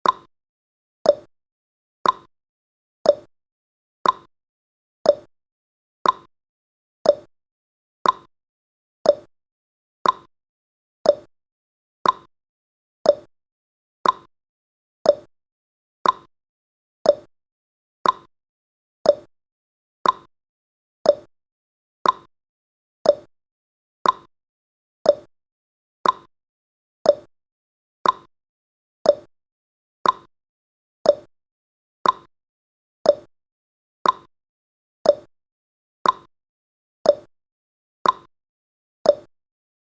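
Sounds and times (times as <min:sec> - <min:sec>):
timer ticking: 0:00.0 - 0:00.3, 0:01.0 - 0:01.3, 0:02.0 - 0:02.3, 0:03.0 - 0:03.3, 0:04.0 - 0:04.3, 0:05.1 - 0:05.3, 0:06.0 - 0:06.3, 0:07.0 - 0:07.3, 0:08.0 - 0:08.3, 0:09.0 - 0:09.3, 0:10.0 - 0:10.3, 0:11.0 - 0:11.3, 0:12.0 - 0:12.3, 0:13.0 - 0:13.3, 0:14.0 - 0:14.3, 0:15.0 - 0:15.3, 0:16.0 - 0:16.3, 0:17.0 - 0:17.3, 0:18.0 - 0:18.3, 0:19.0 - 0:19.3, 0:20.0 - 0:20.3, 0:21.0 - 0:21.3, 0:22.0 - 0:22.3, 0:23.0 - 0:23.3, 0:24.0 - 0:24.3, 0:25.0 - 0:25.3, 0:26.0 - 0:26.3, 0:27.0 - 0:27.3, 0:28.0 - 0:28.3, 0:29.0 - 0:29.3, 0:30.0 - 0:30.3, 0:31.0 - 0:31.3, 0:32.0 - 0:32.3, 0:33.0 - 0:33.3, 0:34.0 - 0:34.3, 0:35.0 - 0:35.3, 0:36.0 - 0:36.3, 0:37.1 - 0:37.3, 0:38.0 - 0:38.3, 0:39.1 - 0:39.3.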